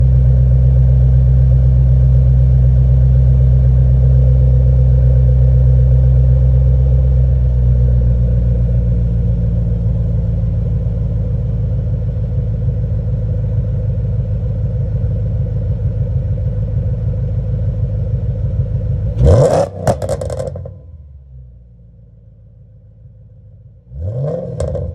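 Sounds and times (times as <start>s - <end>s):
car engine idling: 0.0s - 24.9s
engine throttle blips: 19.0s - 21.7s, 23.9s - 24.9s.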